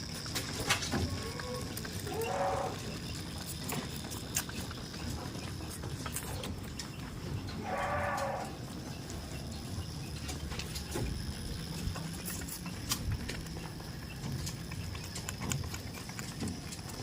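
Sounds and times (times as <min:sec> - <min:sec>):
goat hooves clicking: 0:00.0 - 0:17.0.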